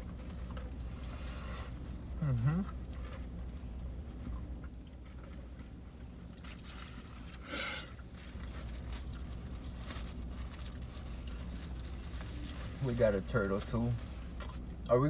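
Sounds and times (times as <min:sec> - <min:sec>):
steady low hum: 0:00.0 - 0:15.0
person eating: 0:00.4 - 0:03.6
fast-food wrappers rustling: 0:05.1 - 0:14.8.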